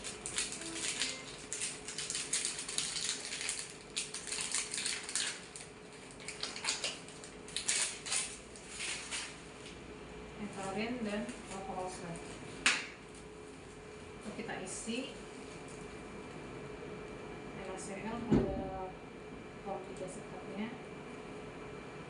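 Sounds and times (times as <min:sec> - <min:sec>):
packaging crackling and rustling: 0:00.0 - 0:09.4.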